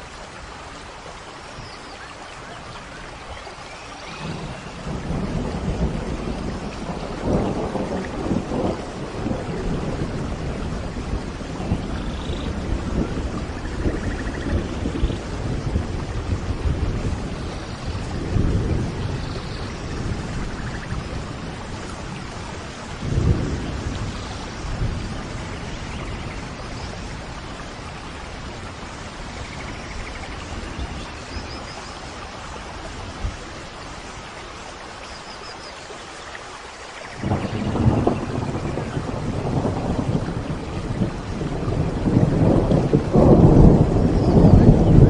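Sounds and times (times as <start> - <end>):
steady rain: 0.0 - 45.0
thunder rolling: 4.1 - 28.6, 37.2 - 45.0.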